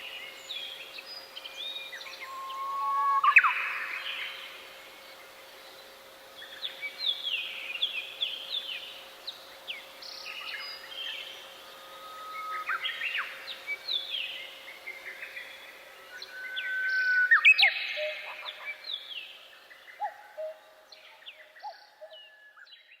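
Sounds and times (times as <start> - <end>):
songbirds singing: 0.0 - 23.0.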